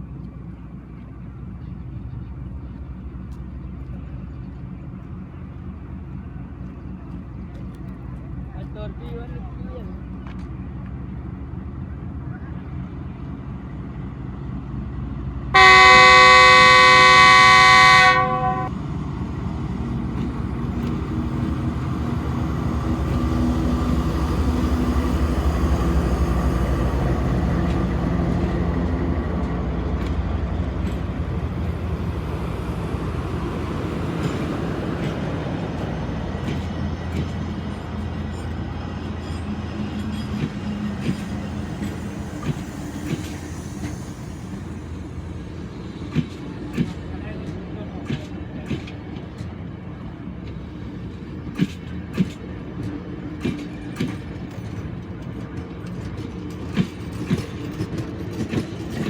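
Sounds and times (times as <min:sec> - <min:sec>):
train rumbling past: 0:00.0 - 0:59.0
train horn blast: 0:15.6 - 0:18.7.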